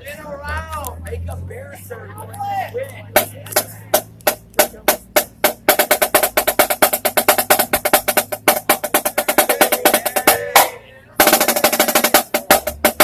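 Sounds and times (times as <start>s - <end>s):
marching drum strokes and roll: 3.1s - 13.0s.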